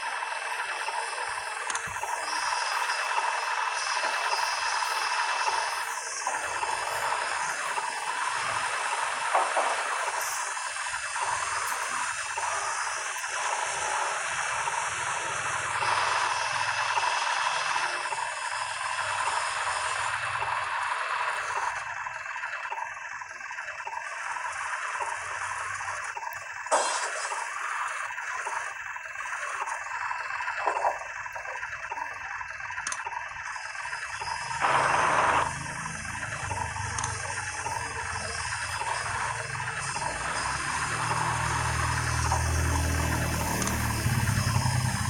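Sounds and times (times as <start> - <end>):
excavator running: 0.0 - 45.0
faint high whines: 0.0 - 45.0.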